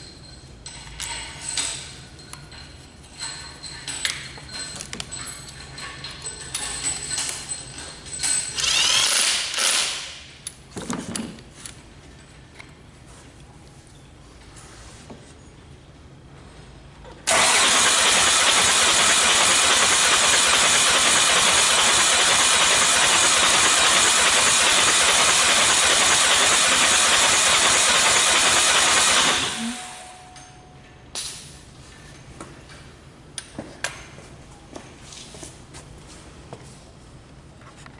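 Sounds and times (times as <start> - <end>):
diesel engine running: 17.3 - 30.2.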